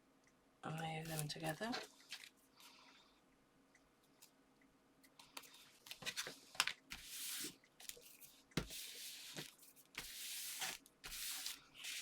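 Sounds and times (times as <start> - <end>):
paper sliding and rubbing: 6.0 - 12.0.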